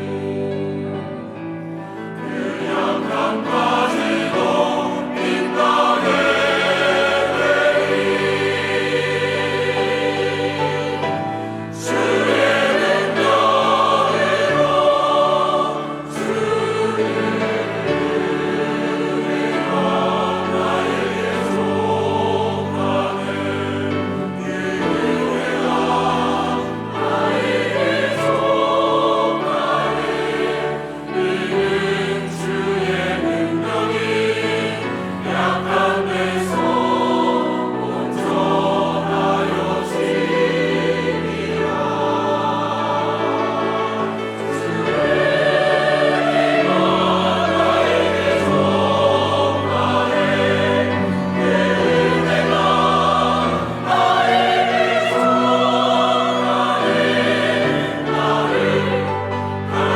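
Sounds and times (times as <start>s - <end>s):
choir singing in harmony: 0.0s - 59.9s
organ: 0.0s - 59.9s
piano: 0.0s - 59.9s
strings: 0.0s - 59.9s.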